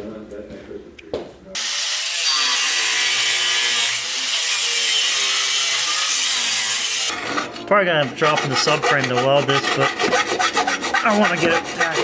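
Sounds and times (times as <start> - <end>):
power tool cutting metal: 1.6 - 7.4.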